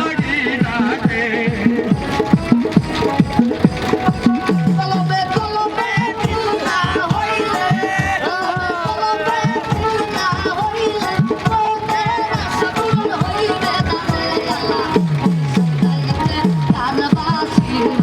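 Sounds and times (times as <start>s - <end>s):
wavering melody: 0.0s - 7.7s
hand drum strokes: 0.0s - 18.0s.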